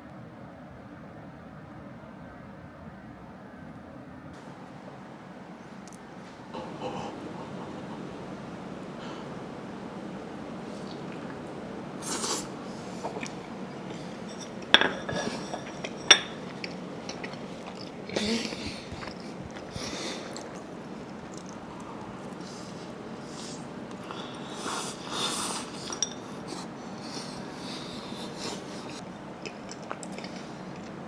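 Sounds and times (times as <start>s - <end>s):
mouth noises while eating: 6.6s - 31.0s
soft scraping and handling: 12.1s - 17.7s
cutlery clinking against a plate: 12.4s - 21.6s, 25.0s - 27.1s
breathing through the nose: 18.1s - 20.5s, 21.8s - 29.0s.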